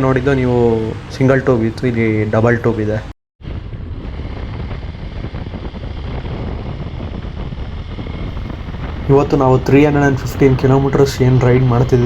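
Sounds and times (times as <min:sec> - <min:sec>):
wind noise: 0:00.0 - 0:12.0
motorcycle engine running: 0:03.5 - 0:12.0.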